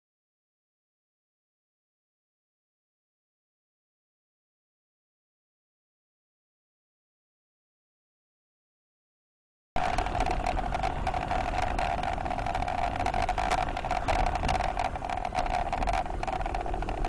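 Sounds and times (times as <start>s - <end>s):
car road and engine noise: 9.8s - 17.0s
small clicks: 9.8s - 17.0s.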